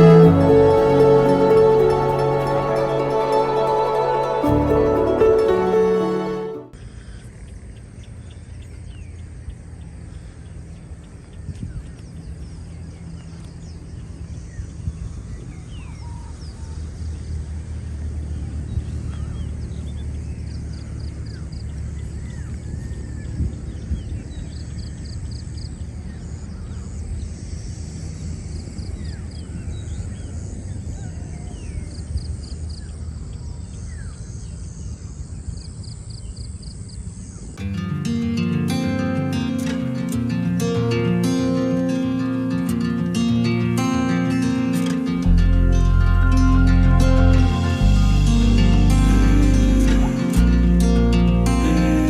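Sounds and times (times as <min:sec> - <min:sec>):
steady low rumble: 0:45.3 - 0:52.0.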